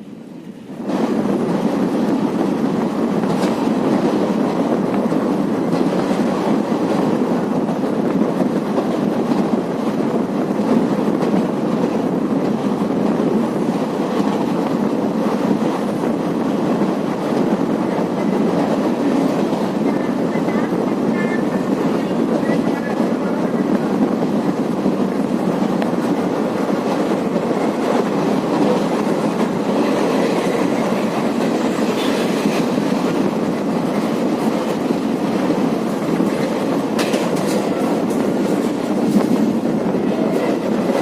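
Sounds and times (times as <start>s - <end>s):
train wheels rumbling on rails: 0.0s - 41.0s
rail joint clicks: 0.3s - 41.0s.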